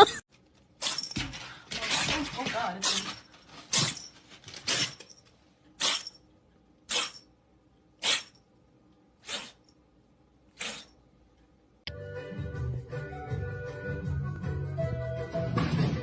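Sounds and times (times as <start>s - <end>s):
pet sneezing: 5.8s - 6.2s, 6.9s - 7.2s, 8.0s - 8.4s, 9.2s - 9.6s, 10.5s - 11.0s.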